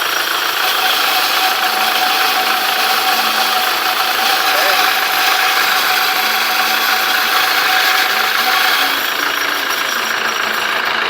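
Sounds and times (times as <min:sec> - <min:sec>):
clutch noise: 0:00.0 - 0:11.0
diesel engine idling: 0:00.0 - 0:11.0.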